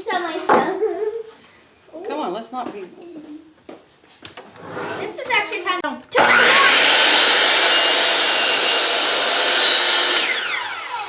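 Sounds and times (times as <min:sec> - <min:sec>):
power saw cutting wood: 0:06.2 - 0:11.0.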